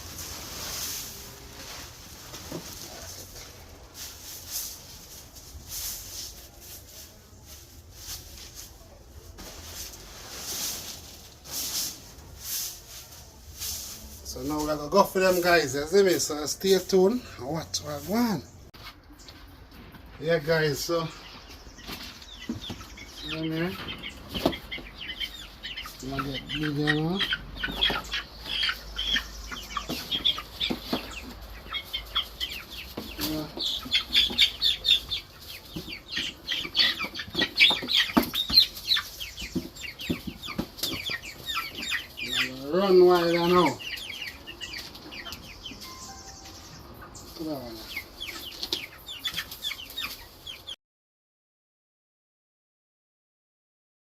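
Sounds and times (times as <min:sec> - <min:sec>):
scratching in dry bedding: 0:00.0 - 0:15.4
chickens calling: 0:00.0 - 0:50.8.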